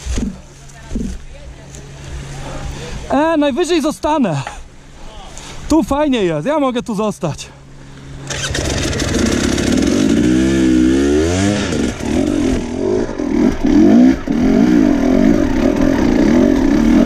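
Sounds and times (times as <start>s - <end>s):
motorcycle engine revving: 8.2s - 17.0s.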